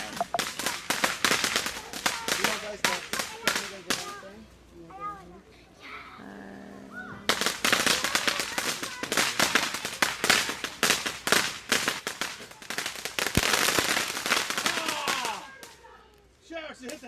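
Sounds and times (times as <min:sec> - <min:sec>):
fireworks crackling bangs: 0:00.0 - 0:04.4, 0:07.2 - 0:16.1, 0:16.7 - 0:17.0.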